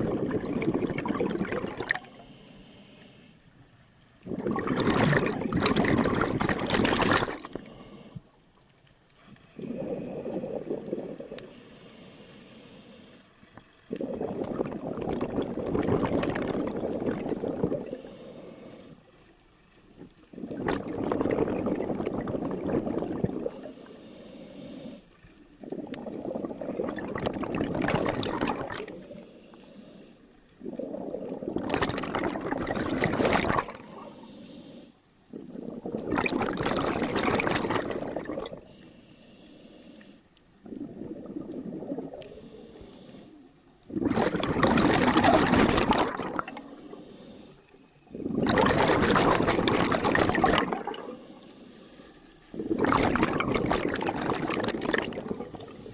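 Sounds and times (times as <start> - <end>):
exhaled bubbles underwater: 0.0 - 2.3, 4.1 - 8.3, 9.3 - 11.6, 13.4 - 23.9, 24.7 - 29.6, 30.3 - 34.3, 35.2 - 38.8, 40.5 - 51.4, 52.4 - 55.9
regulator hiss on inhale: 2.0 - 3.8, 7.3 - 8.6, 9.2 - 14.8, 16.4 - 20.6, 22.2 - 27.8, 28.8 - 31.1, 33.6 - 35.9, 38.5 - 43.8, 46.4 - 48.4, 50.8 - 52.8, 55.3 - 55.9.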